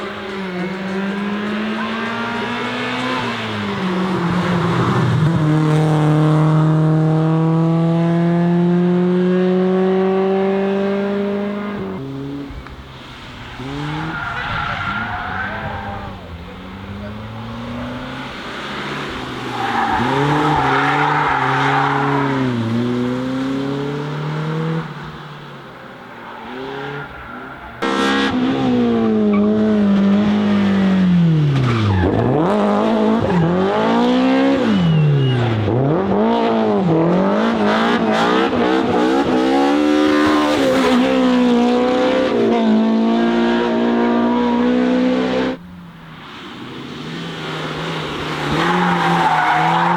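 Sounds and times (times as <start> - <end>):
car engine revving through gears: 0.0 - 12.6, 16.0 - 25.2, 26.3 - 45.6
tyre squeal: 34.6 - 35.7.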